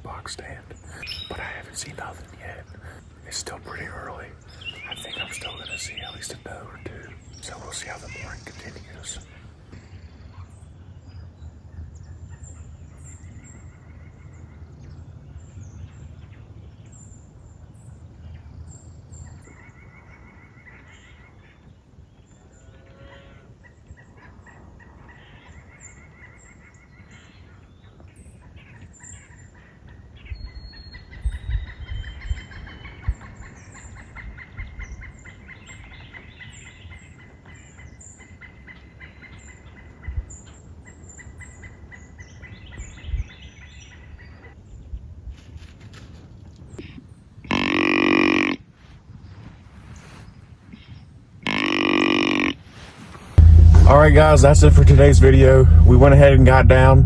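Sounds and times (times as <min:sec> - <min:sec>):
birds chirping: 0:00.0 - 0:10.6
low thumps and rumbles: 0:53.4 - 0:57.0.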